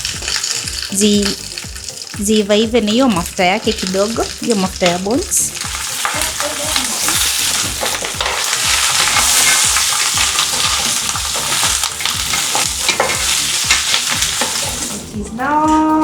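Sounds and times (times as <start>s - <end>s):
bones and onions sizzling: 0.0s - 15.6s.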